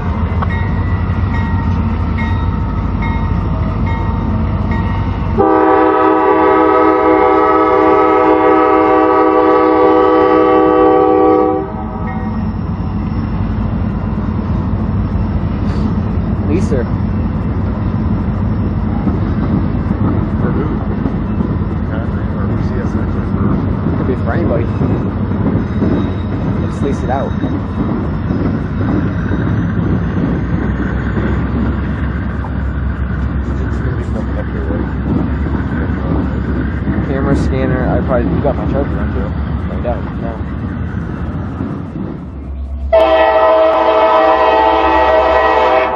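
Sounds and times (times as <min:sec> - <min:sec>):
low train rumble: 0:00.0 - 0:45.9
locomotive air horn: 0:05.4 - 0:12.1, 0:42.9 - 0:45.9.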